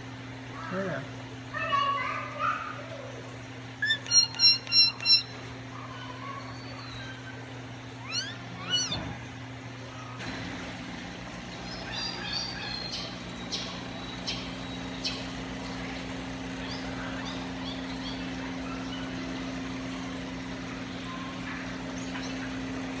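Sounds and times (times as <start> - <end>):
low mechanical hum: 0.0 - 23.0
short rising animal calls: 3.8 - 5.3, 8.0 - 10.2
birds chirping: 3.8 - 10.3, 11.0 - 23.0.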